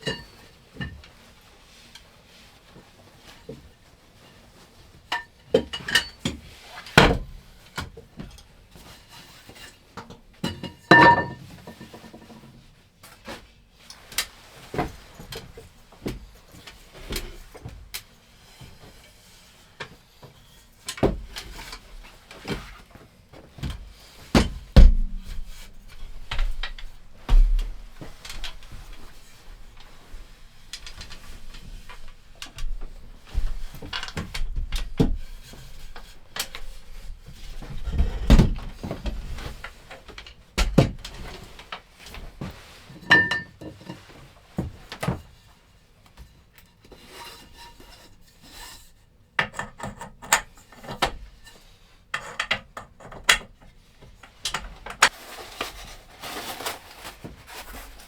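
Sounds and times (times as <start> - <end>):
objects knocking and clattering: 10.0 - 12.4, 23.4 - 45.2.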